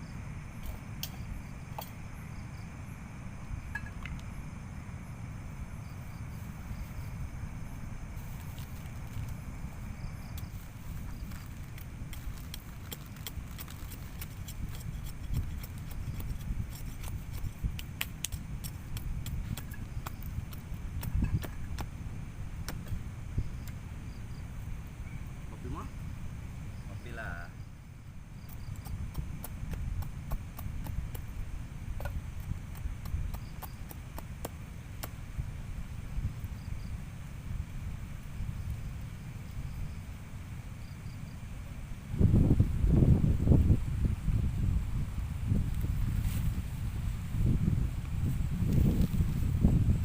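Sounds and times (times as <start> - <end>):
low rain rumble: 0.0 - 28.4, 29.0 - 50.0
sharp ticks and knocks: 11.3 - 21.9, 22.6 - 23.0, 28.4 - 31.4, 32.0 - 35.2.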